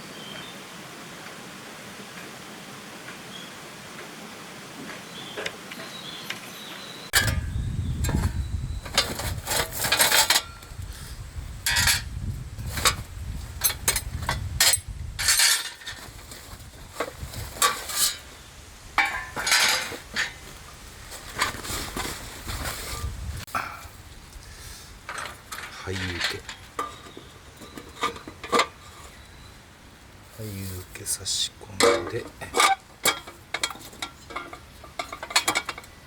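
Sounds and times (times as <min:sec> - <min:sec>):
steel pieces clinking and clanking: 0:07.2 - 0:10.6, 0:11.6 - 0:12.1, 0:13.6 - 0:16.1, 0:19.0 - 0:20.5, 0:25.0 - 0:29.2, 0:31.8 - 0:36.0.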